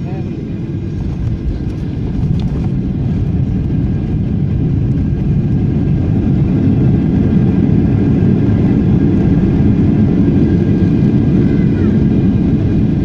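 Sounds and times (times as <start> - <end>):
low rumble of engines and airflow: 0.0 - 13.0.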